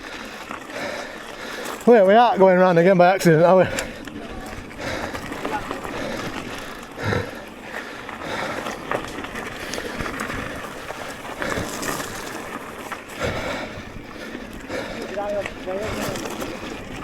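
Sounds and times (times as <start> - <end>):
bike knocking and rattling: 0.0 - 17.0
tyre and wind rushing: 8.2 - 17.0.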